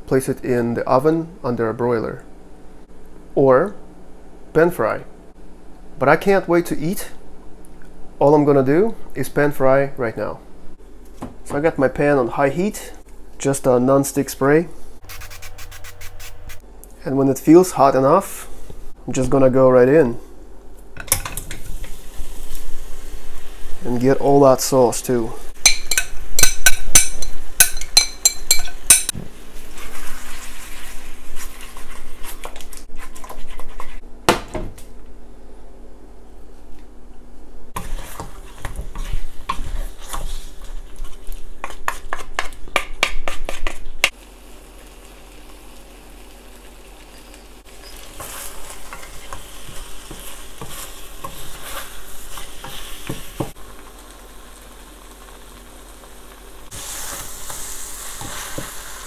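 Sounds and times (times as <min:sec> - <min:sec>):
chicken sizzling in a pan: 0:21.6 - 0:23.9, 0:44.1 - 0:59.0
spatulas scraping and knocking pan: 0:37.8 - 0:43.9, 0:47.8 - 0:53.6.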